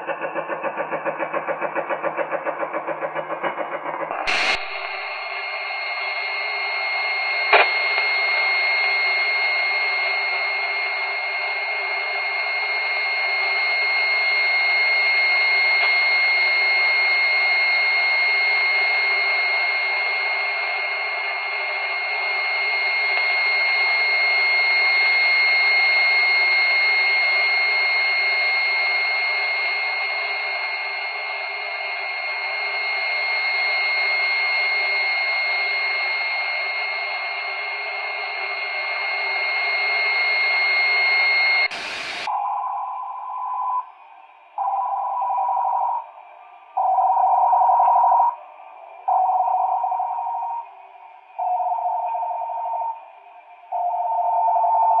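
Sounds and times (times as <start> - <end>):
radio hiss: 0.0 - 13.0, 34.7 - 44.5
high-pitched radio whistle: 0.0 - 55.0
click: 7.5 - 8.1.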